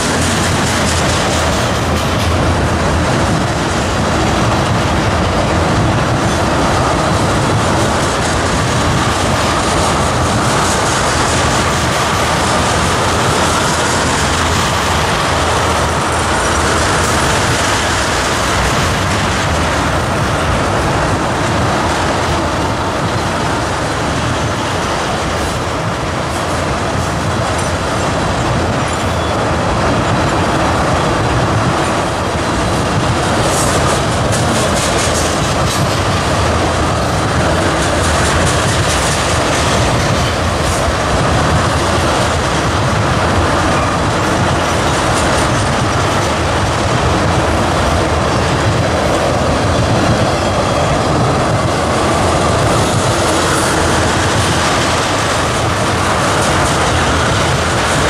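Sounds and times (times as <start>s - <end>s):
train wheels rumbling and clattering: 0.0s - 58.0s.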